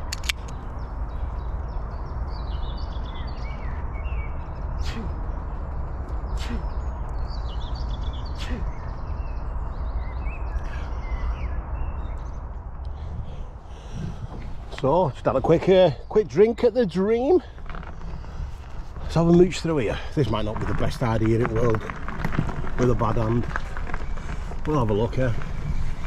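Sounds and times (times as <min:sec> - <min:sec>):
sharp clicks: 0:00.0 - 0:00.7
low rumble: 0:00.0 - 0:16.8
small birds chirping: 0:00.0 - 0:26.0.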